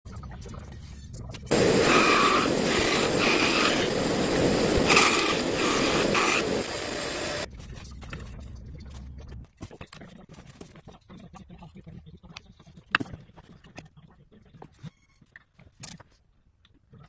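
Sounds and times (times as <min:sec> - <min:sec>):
power tool running: 0:01.5 - 0:07.5.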